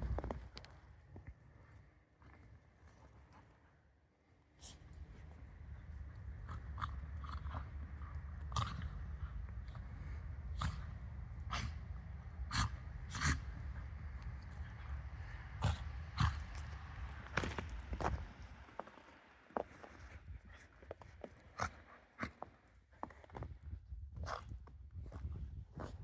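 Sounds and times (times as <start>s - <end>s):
wind rumbling on microphone: 0.0s - 1.8s, 4.6s - 21.8s, 23.1s - 26.0s
snow crunching: 12.6s - 21.9s.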